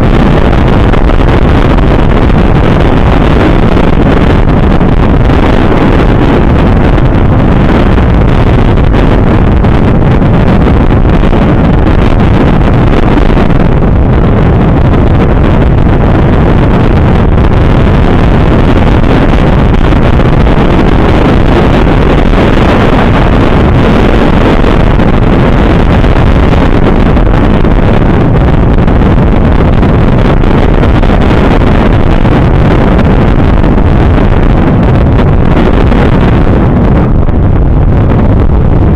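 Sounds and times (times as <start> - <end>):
motorcycle road noise: 0.0 - 38.9
wind roar on microphone: 0.0 - 38.9.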